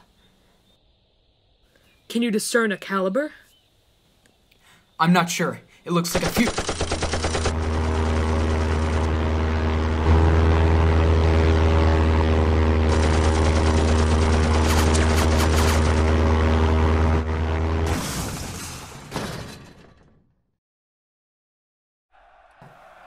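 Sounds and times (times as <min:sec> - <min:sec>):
machine-gun burst: 0:06.1 - 0:09.2, 0:12.9 - 0:16.2
propeller plane engine droning: 0:07.2 - 0:18.0.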